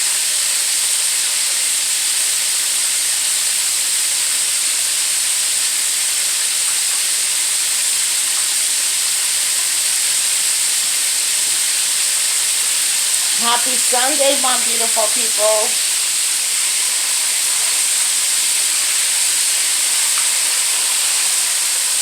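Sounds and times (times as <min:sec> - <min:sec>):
chicken wings sizzling in oil: 0:00.0 - 0:22.0.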